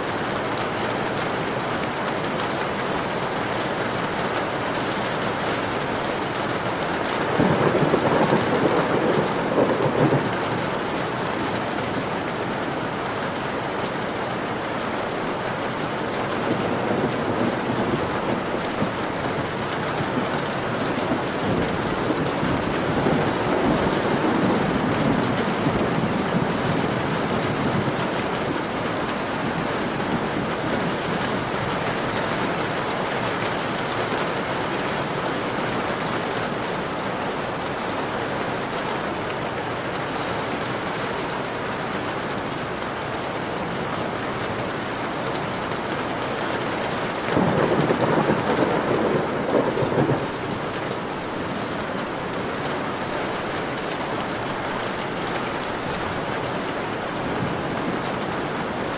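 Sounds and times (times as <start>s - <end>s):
rain on a window: 0.0s - 58.9s
thunder rumbling: 5.6s - 12.0s, 16.1s - 32.4s, 47.0s - 56.3s.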